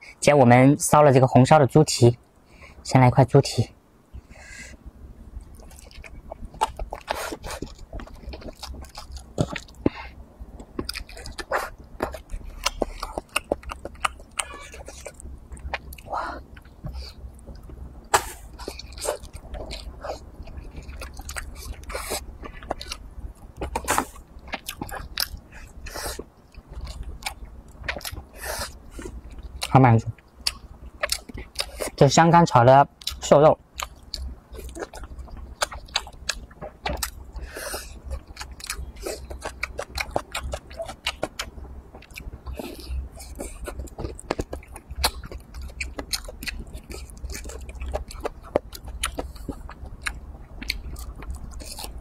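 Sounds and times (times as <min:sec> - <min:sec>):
chewing mouth clicks and smacks: 0:10.6 - 0:16.7, 0:33.8 - 0:37.2, 0:38.2 - 0:52.0.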